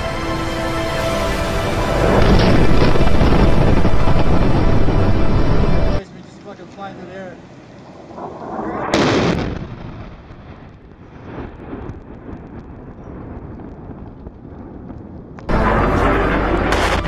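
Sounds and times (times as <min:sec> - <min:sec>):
low rumbling with crackles: 0:01.4 - 0:06.7, 0:07.3 - 0:17.0
explosion blast: 0:01.8 - 0:05.4, 0:07.8 - 0:14.1, 0:14.7 - 0:17.0.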